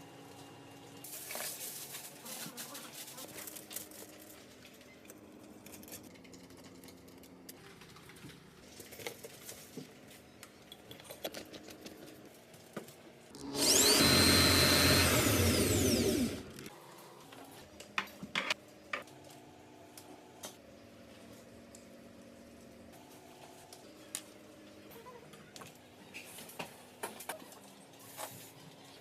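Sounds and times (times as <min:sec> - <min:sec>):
electric drill running: 0:13.3 - 0:16.7.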